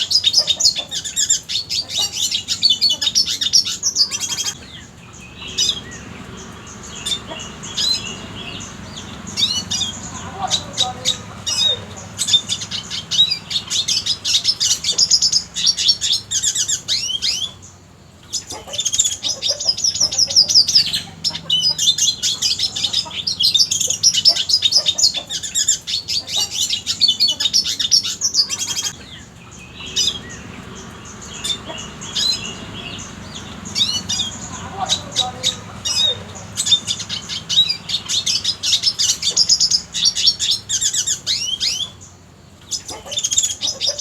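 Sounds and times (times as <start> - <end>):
bird twittering and chirping: 0.0 - 44.0.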